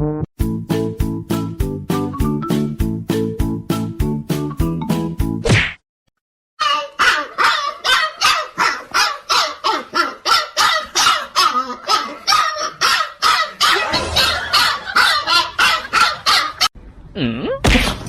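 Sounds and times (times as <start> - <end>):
dog barking: 7.0 - 16.7.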